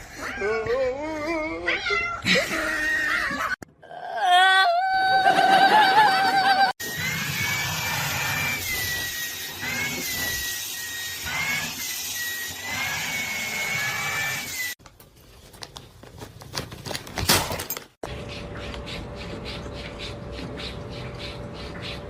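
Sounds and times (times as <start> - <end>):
small motor whining: 6.8 - 14.8.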